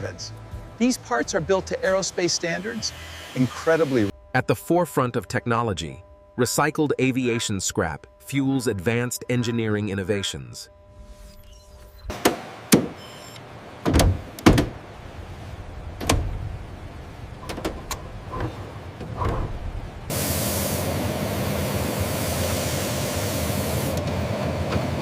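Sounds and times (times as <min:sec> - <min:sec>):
sharp knocks and clanks: 0:12.1 - 0:13.0.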